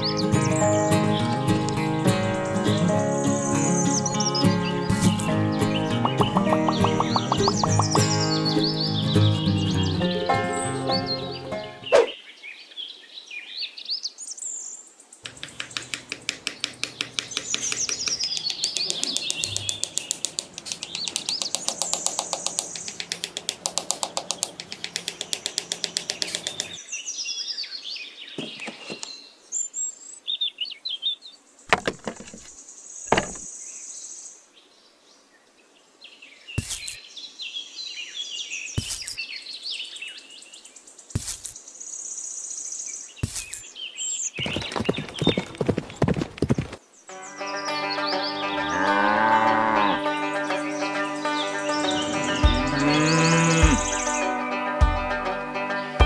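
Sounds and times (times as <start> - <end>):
birds chirping and twittering: 0.0 - 55.1
rapid pulsing bird calls: 5.0 - 9.9, 15.2 - 26.8, 43.2 - 46.8, 51.0 - 54.4
sharp clicks: 6.1 - 8.0, 15.2 - 26.8.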